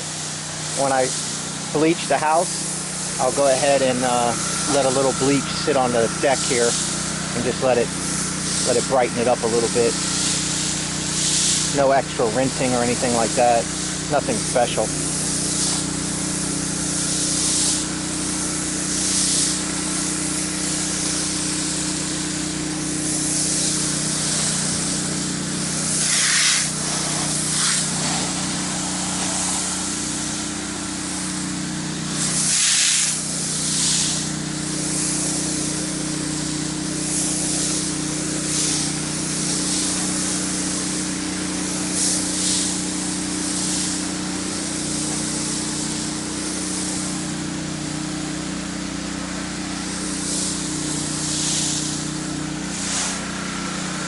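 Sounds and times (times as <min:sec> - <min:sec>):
pressure washer engine running: 0:00.0 - 0:54.0
water spray hissing on concrete: 0:00.0 - 0:54.0.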